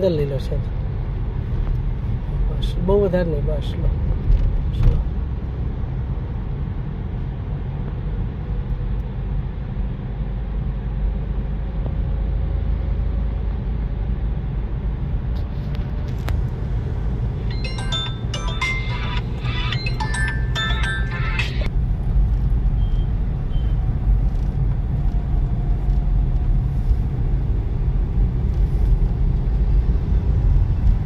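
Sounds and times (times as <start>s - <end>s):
car driving low rumble: 0.0s - 31.0s
short high tones: 17.4s - 21.7s.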